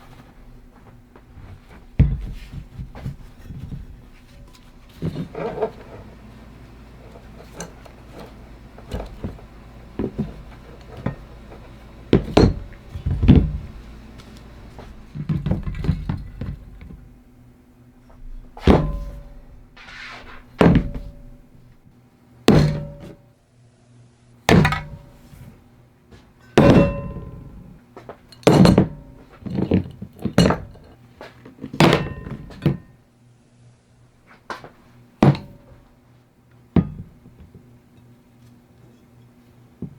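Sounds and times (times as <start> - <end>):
heavy blows on metal: 0.0 - 17.3, 18.1 - 21.8, 22.5 - 23.2, 24.5 - 25.4, 26.5 - 27.8, 28.5 - 29.5, 35.2 - 35.9.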